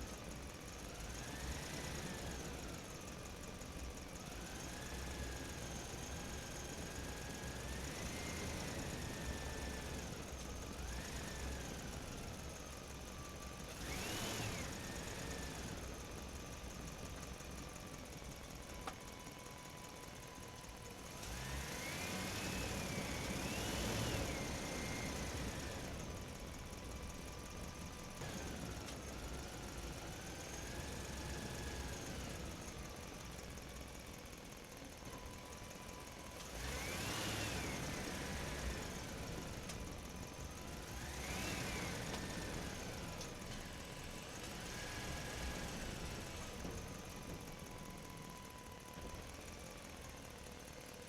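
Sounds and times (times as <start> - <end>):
small motor whining: 4.3 - 17.3, 20.5 - 32.9, 35.0 - 49.4.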